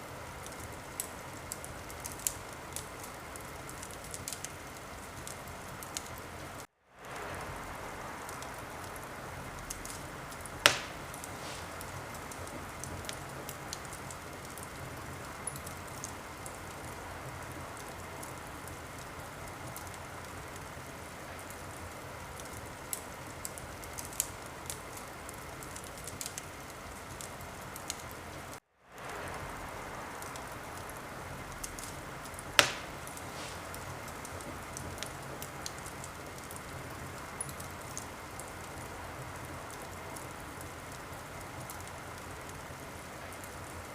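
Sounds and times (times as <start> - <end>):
wood fire crackling: 0.0 - 43.9
loud sharp pops of fire: 8.2 - 16.9, 29.0 - 38.6.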